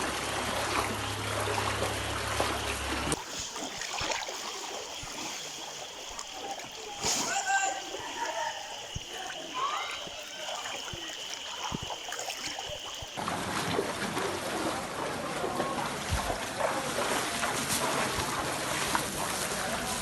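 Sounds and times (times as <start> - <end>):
floodwater rushing: 0.0 - 20.0
light water sounds: 0.0 - 20.0.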